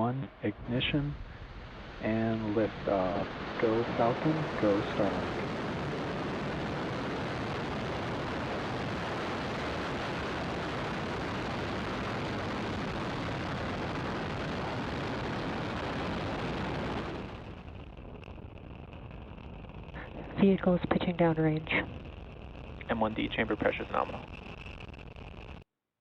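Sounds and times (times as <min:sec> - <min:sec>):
rocket engines roaring: 0:00.0 - 0:25.6.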